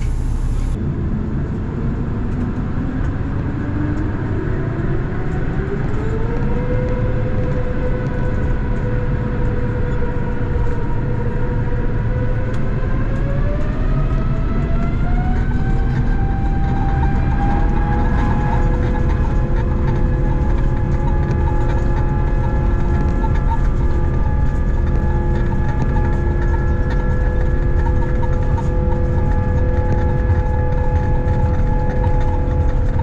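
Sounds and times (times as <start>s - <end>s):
low engine rumble: 0.0s - 33.0s
vehicle accelerating whine: 0.0s - 33.0s.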